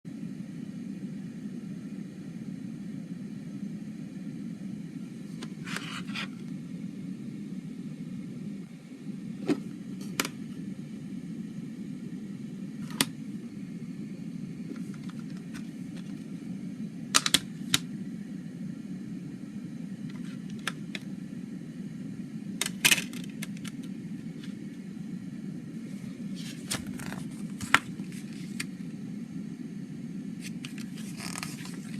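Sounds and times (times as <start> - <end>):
steady low hum: 0.0 - 31.9
cd case clicking: 5.4 - 6.3, 9.5 - 10.4, 12.8 - 13.2, 14.7 - 16.3, 17.1 - 17.9, 20.1 - 21.1, 22.6 - 24.6, 26.5 - 28.7.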